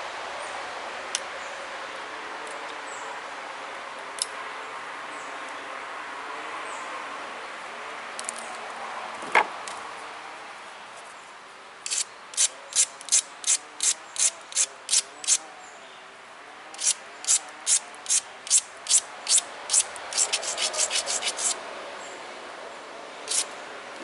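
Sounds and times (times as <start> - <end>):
stone abrader scraping stone: 16.8 - 21.6, 23.3 - 23.5.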